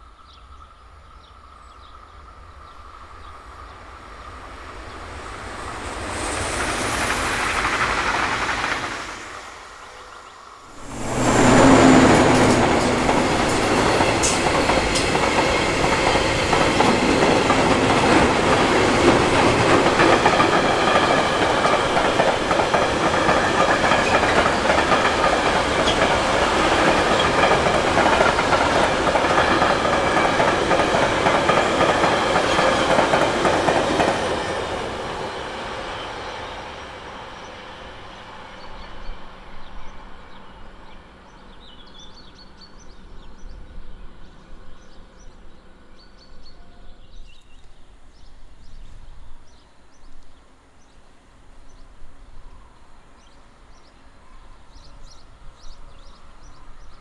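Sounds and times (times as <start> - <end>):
train wheels clattering over rails: 4.6 - 9.6, 10.8 - 36.2.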